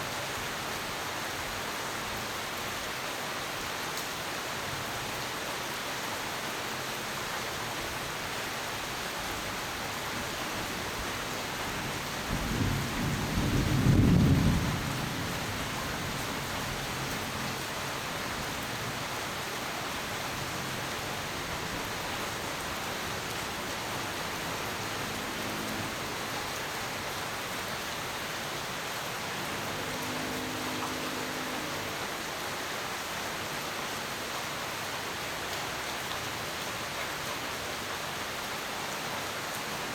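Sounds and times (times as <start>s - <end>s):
steady rain hiss: 0.0s - 39.9s
thunder clap rumbling: 11.9s - 16.2s.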